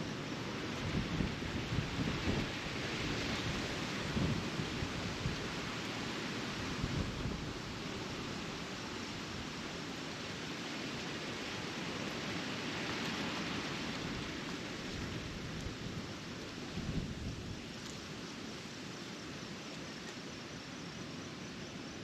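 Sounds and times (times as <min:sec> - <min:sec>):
wind blowing over microphone: 0:00.8 - 0:05.5, 0:06.7 - 0:07.7, 0:14.0 - 0:17.8.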